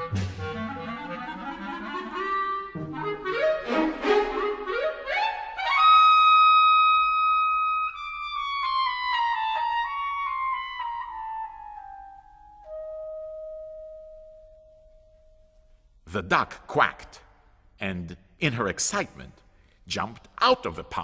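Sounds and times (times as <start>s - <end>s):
orchestral wind instrument solo: 0.0s - 15.0s.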